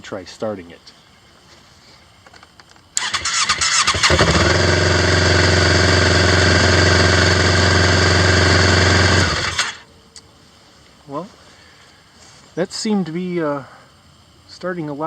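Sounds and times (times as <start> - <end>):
electric starter cranking engine: 3.0 - 9.8
snowmobile engine idling: 4.0 - 9.8.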